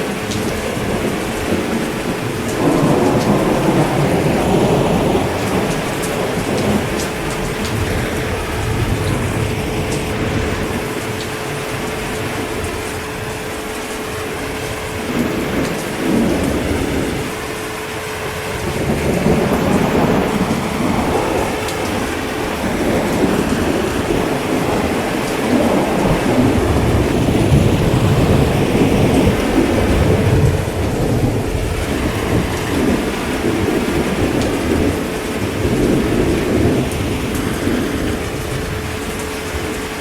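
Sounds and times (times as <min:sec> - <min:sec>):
heavy rain falling: 0:00.0 - 0:40.0
low rolling thunder: 0:00.0 - 0:40.0.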